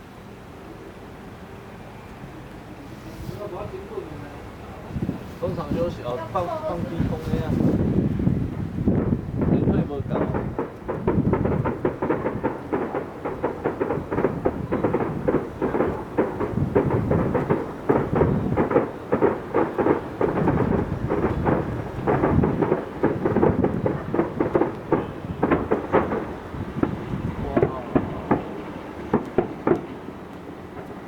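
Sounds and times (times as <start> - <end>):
fireworks bursting: 8.8 - 31.0.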